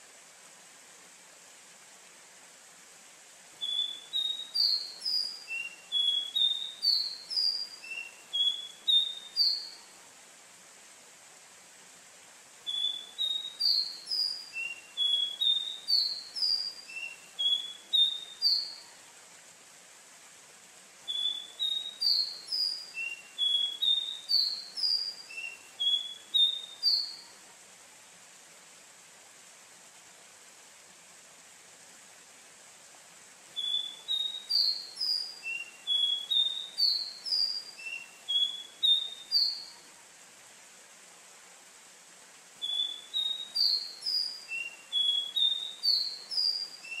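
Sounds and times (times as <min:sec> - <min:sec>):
faint hiss: 0:00.0 - 0:47.0
bird singing whistled notes: 0:03.6 - 0:09.9, 0:12.6 - 0:18.9, 0:21.1 - 0:27.4, 0:33.5 - 0:39.8, 0:42.6 - 0:47.0.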